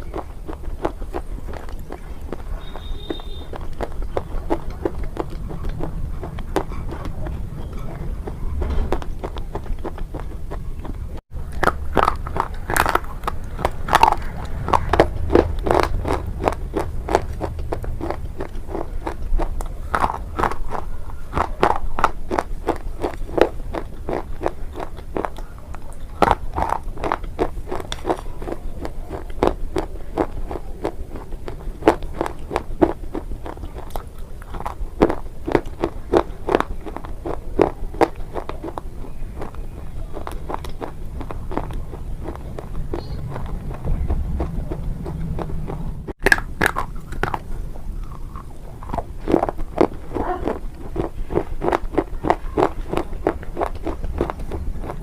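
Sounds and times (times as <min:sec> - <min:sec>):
crunching hard brittle mineral: 0:11.4 - 0:25.5.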